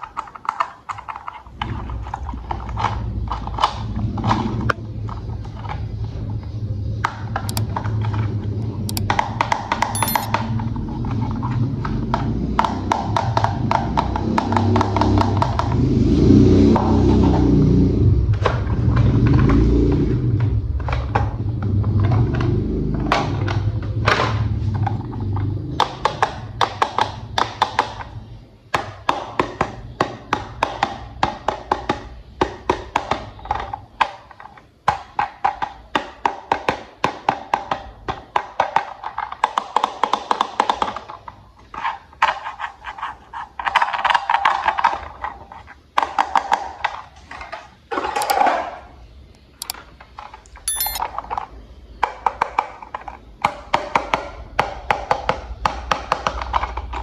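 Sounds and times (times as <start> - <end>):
plastic toy parts clicking: 10.0 - 10.3, 50.7 - 51.0.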